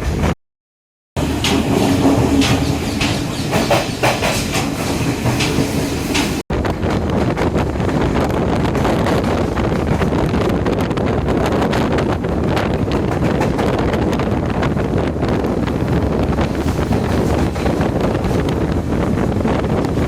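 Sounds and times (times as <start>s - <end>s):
passenger train rumbling: 0.0s - 0.3s, 1.2s - 20.0s
wheels clicking over rail joints: 1.2s - 6.4s.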